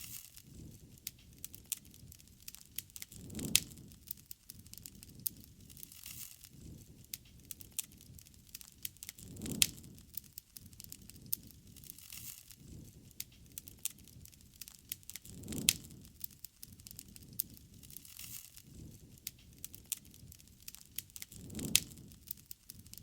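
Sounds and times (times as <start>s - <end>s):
campfire crackling: 0.0s - 23.0s
low rush of flame: 0.0s - 23.0s.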